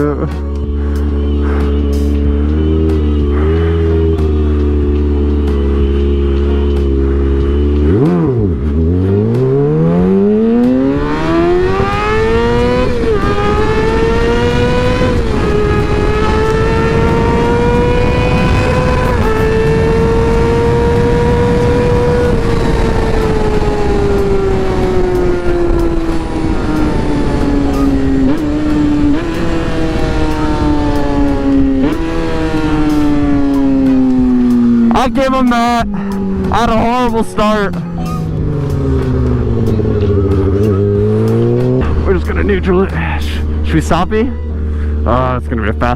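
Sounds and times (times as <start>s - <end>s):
motorcycle engine revving: 0.0s - 45.9s
wind rush: 11.2s - 31.8s.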